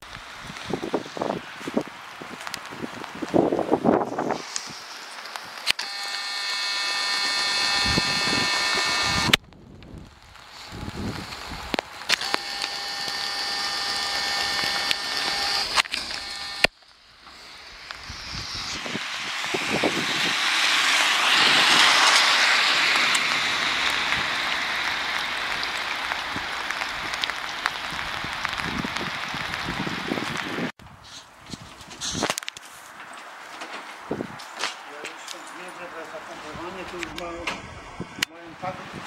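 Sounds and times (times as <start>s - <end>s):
steady traffic noise: 0.0s - 39.0s
tyres hissing on wet road: 0.1s - 9.4s, 10.1s - 31.3s.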